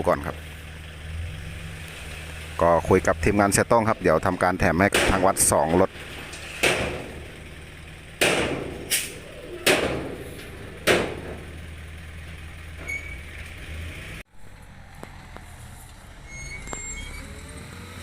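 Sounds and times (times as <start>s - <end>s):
diesel machinery running: 0.0s - 18.0s
loud bangs: 4.7s - 11.8s.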